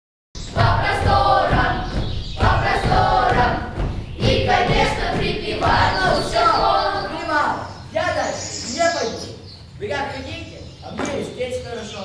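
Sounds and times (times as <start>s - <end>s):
backing music with thudding beat: 0.4s - 7.3s
group of voices singing: 0.4s - 7.9s.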